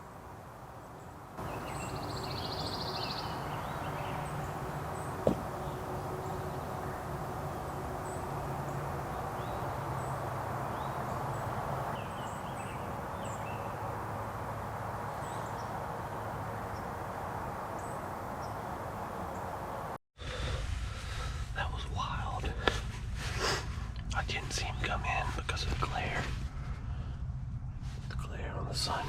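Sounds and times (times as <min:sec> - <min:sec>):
songbirds chirping: 0:00.0 - 0:20.0, 0:24.1 - 0:26.3, 0:27.6 - 0:29.0
steady background hiss: 0:00.0 - 0:20.0.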